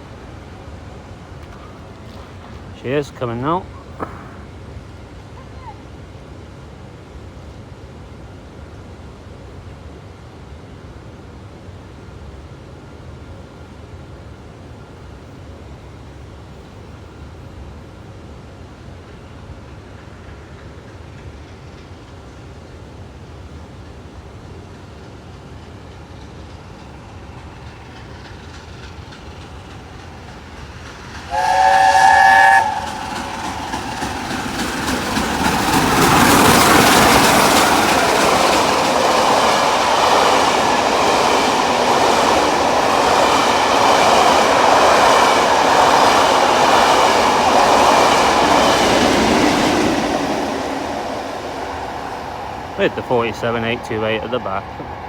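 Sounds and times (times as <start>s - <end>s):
train passing rattle: 0.0s - 55.0s
steam locomotive chime whistle: 31.3s - 33.9s.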